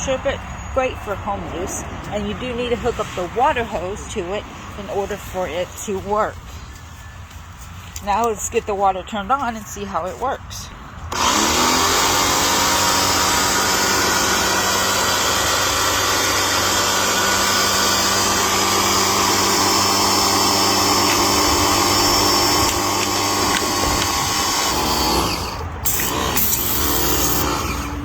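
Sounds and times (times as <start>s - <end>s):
pressure washer motor whine: 11.1s - 28.0s
water spray hissing: 25.8s - 27.6s.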